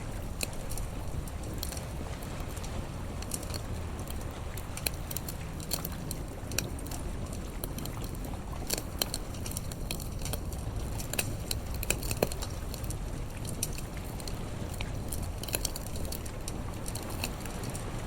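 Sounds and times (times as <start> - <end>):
wood fire crackling and popping: 0.0 - 18.0.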